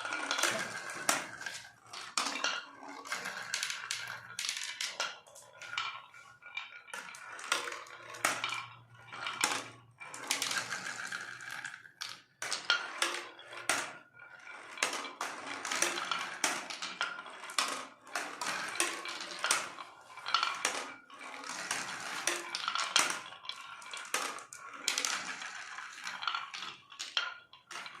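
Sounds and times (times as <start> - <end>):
marbles rolling on wooden run: 0.0 - 28.0.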